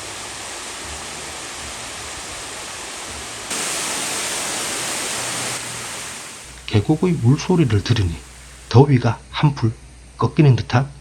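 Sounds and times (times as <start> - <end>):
waterfall rushing: 0.0 - 8.7.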